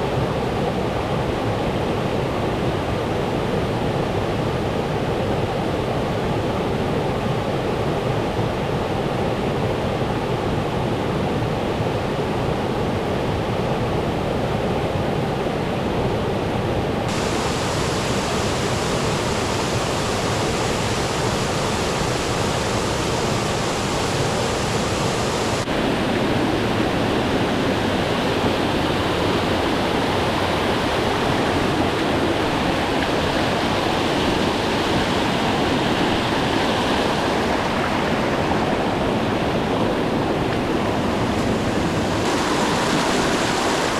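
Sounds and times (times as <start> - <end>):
water rushing: 17.1 - 43.9.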